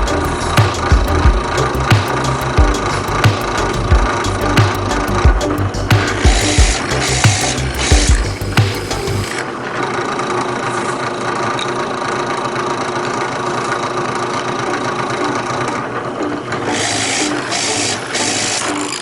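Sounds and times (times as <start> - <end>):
drill press motor humming: 13.1 - 19.0.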